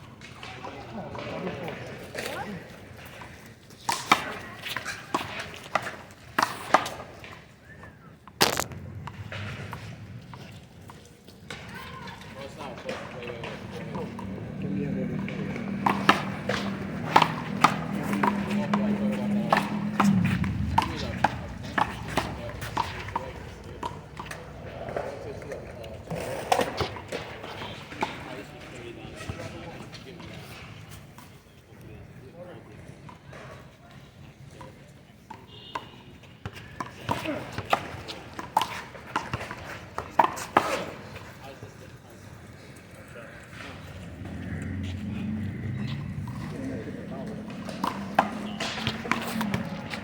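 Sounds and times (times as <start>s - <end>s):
players' voices: 7.6s - 35.2s, 40.4s - 50.0s
steady low hum: 18.8s - 25.8s.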